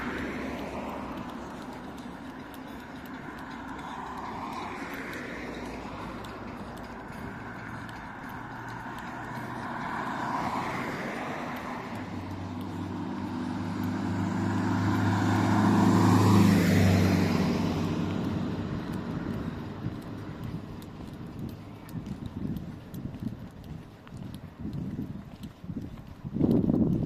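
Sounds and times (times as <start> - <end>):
light vehicle tyre noise: 0.0 - 27.0
vehicle passing by: 0.0 - 27.0.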